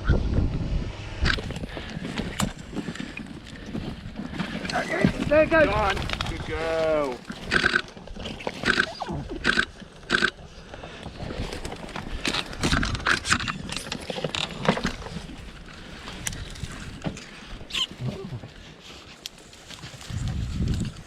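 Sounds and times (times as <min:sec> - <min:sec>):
scuffling and scraping: 0:01.4 - 0:09.0, 0:10.8 - 0:21.0
animal squeals: 0:08.5 - 0:10.3.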